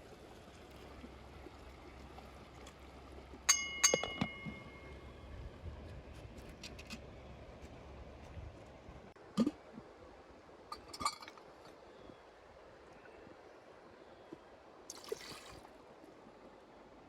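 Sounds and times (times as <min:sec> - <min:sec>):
cookware clinking and knocking: 0:03.5 - 0:04.7.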